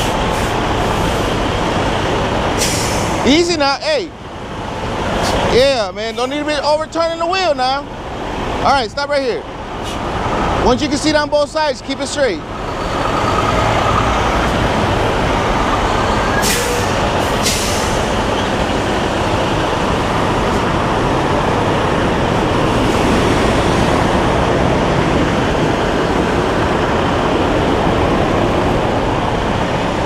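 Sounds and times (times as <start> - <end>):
short air hisses: 2.6 - 3.2, 16.4 - 18.1
truck diesel engine running: 9.2 - 30.0.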